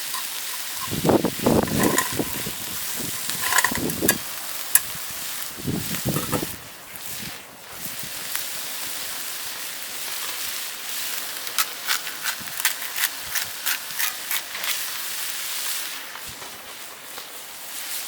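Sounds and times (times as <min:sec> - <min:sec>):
sharp clicks and pops: 0:00.0 - 0:04.9, 0:06.0 - 0:06.6
hiss of cooking over fire: 0:00.0 - 0:18.0.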